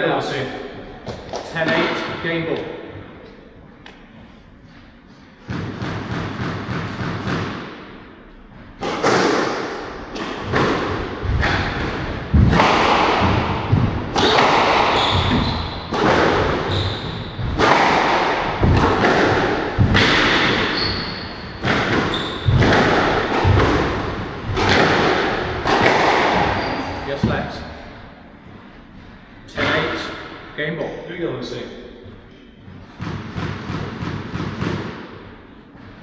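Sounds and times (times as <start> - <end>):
squash ball hitting rackets and walls: 0.7 - 30.6, 31.5 - 36.0
shoes squeaking on court: 13.8 - 17.6, 19.6 - 29.9.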